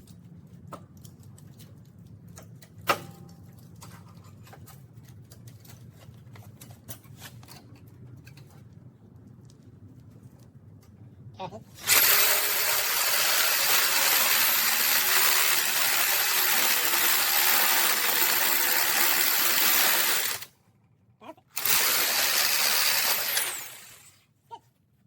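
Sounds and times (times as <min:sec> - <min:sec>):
handheld power tool running: 0:11.8 - 0:20.5, 0:21.6 - 0:24.1.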